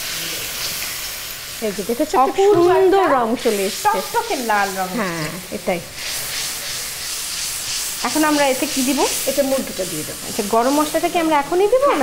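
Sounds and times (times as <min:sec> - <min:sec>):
chili sizzling in a wok: 0:00.0 - 0:12.0
spatula stirring in a wok: 0:01.4 - 0:11.8
person speaking: 0:02.0 - 0:05.4.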